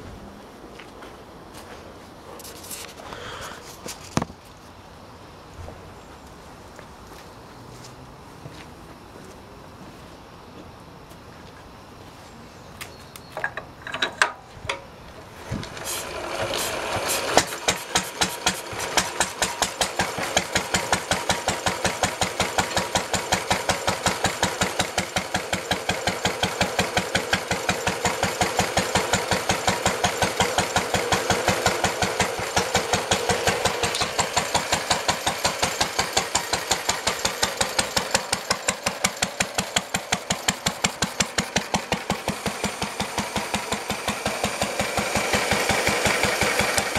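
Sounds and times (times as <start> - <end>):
stationary engine starting and running: 15.4 - 46.9
engine knocks: 15.6 - 46.9.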